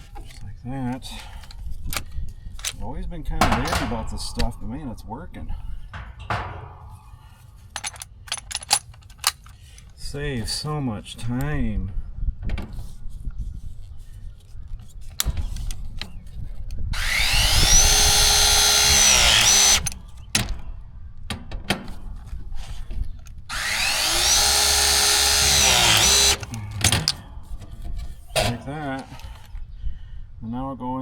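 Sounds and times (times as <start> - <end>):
press tool motor whine: 17.0 - 20.0, 23.5 - 26.6.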